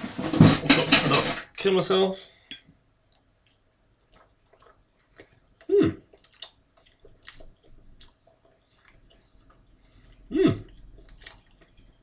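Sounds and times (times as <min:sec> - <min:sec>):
person chewing pasta: 0:03.0 - 0:12.0
wet mouth clicks: 0:03.1 - 0:11.8
person humming: 0:05.7 - 0:06.0, 0:10.3 - 0:10.7.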